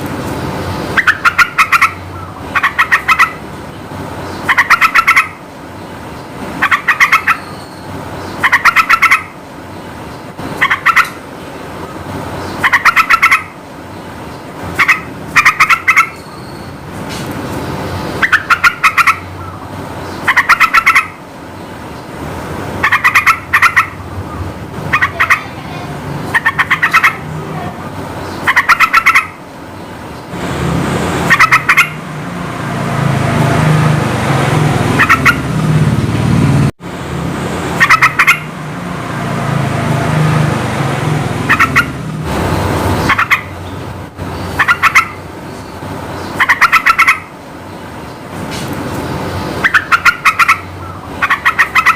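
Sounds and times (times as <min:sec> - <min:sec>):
bulbul chattering calls: 0:00.9 - 0:05.9, 0:06.6 - 0:09.8, 0:10.5 - 0:11.2, 0:12.4 - 0:13.6, 0:14.3 - 0:16.8, 0:17.6 - 0:21.2, 0:22.8 - 0:29.9, 0:31.2 - 0:32.0, 0:34.9 - 0:35.5, 0:37.8 - 0:38.5, 0:41.4 - 0:42.0, 0:43.0 - 0:48.2, 0:49.2 - 0:51.9.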